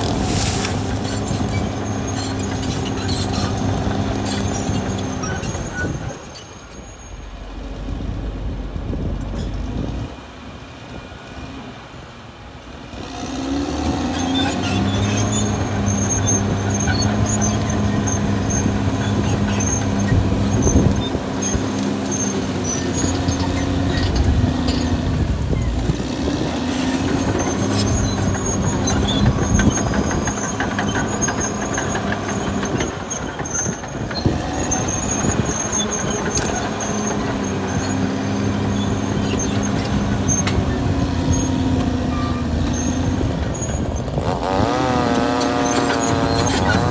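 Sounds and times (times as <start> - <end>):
bulldozer diesel engine running: 0.0 - 46.9.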